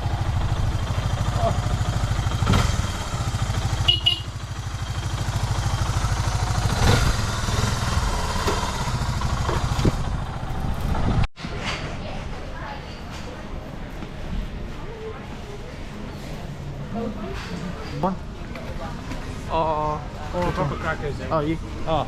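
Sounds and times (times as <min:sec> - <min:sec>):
vehicle engine running: 0:00.0 - 0:11.3.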